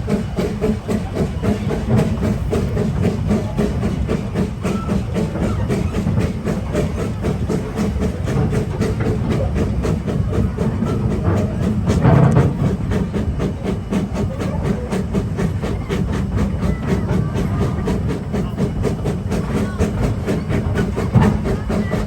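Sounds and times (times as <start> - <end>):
steam hissing: 0.0 - 22.0
steam locomotive beat: 0.0 - 22.0.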